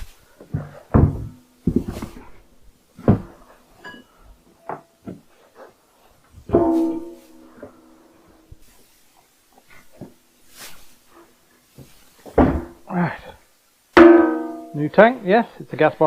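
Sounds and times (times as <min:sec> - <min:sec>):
metal clanks and knocks: 0:06.4 - 0:08.0, 0:14.0 - 0:14.9.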